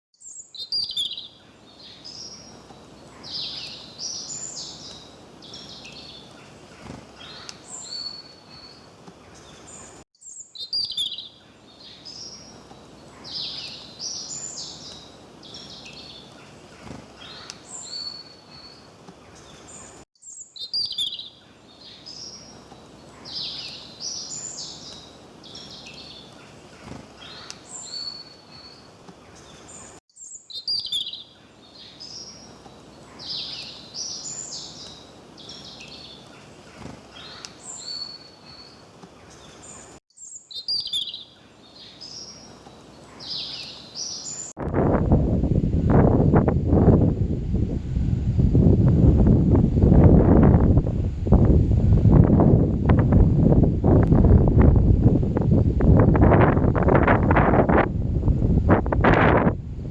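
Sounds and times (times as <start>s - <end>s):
songbirds chirping: 0.2s - 44.6s.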